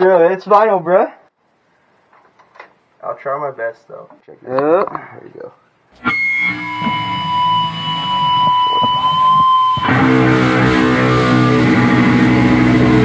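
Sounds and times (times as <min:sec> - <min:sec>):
distorted electric guitar music: 0:06.0 - 0:13.0
high ringing tone: 0:06.0 - 0:13.0.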